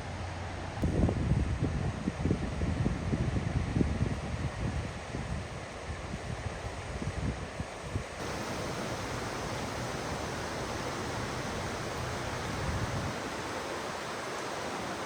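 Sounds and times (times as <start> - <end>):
wind rumble on microphone: 0.8 - 15.0
floodwater rushing: 8.2 - 15.0.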